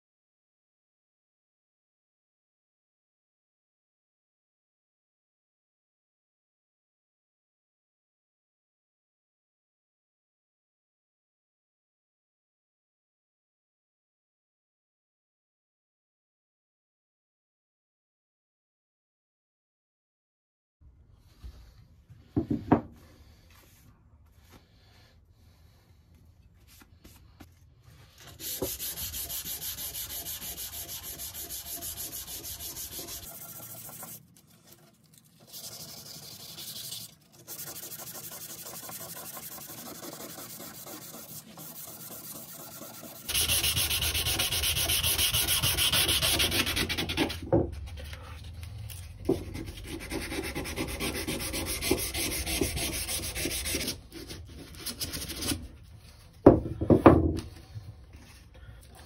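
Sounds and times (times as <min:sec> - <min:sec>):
sanding scraping: 0:28.2 - 0:34.2, 0:35.4 - 0:47.9, 0:49.3 - 0:55.8.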